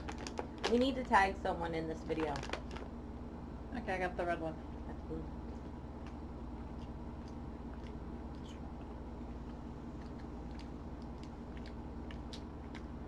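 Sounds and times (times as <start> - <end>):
chewing gummy candy: 0.0 - 2.9, 5.4 - 13.0
steady low hum: 0.0 - 13.0
wet mouth clicks: 6.0 - 13.0.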